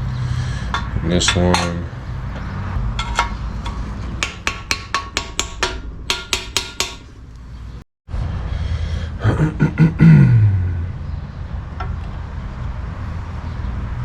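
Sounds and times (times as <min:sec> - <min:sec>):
metal parts clicking and tapping: 0:00.7 - 0:01.8, 0:02.4 - 0:07.1.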